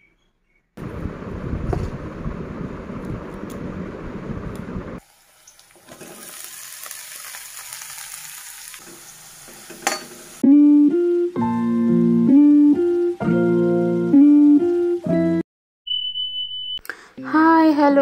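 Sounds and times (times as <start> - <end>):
vegetables frying in a wok: 3.7 - 10.4.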